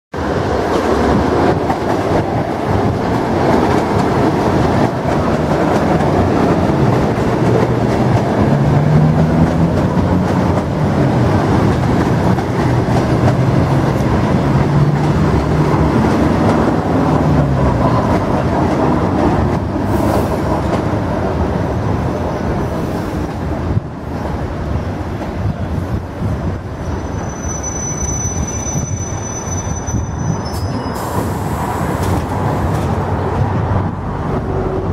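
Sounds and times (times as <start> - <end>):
train wheels rumbling on rails: 0.1 - 34.9
high brake squeal: 26.8 - 31.7.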